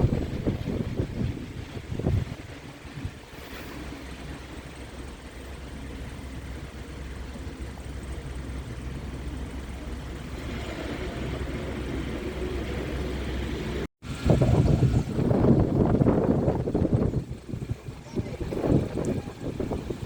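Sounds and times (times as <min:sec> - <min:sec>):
wind on microphone: 0:00.0 - 0:05.1, 0:10.0 - 0:20.0
subway train rumble: 0:00.0 - 0:20.0.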